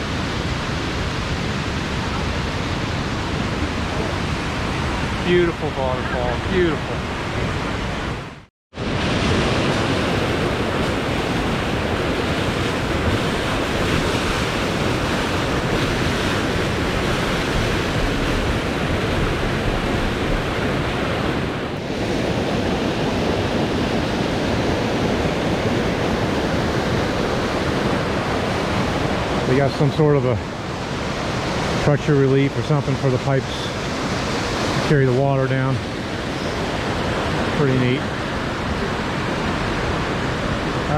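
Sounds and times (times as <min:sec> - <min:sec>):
waterfall rushing: 0:08.8 - 0:40.9.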